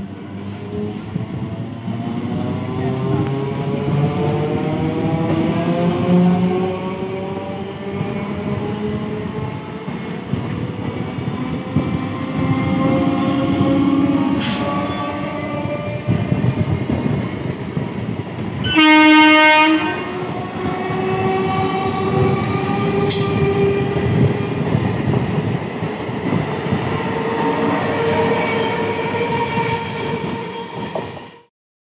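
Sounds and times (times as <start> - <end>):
train horn blast: 18.6 - 21.5.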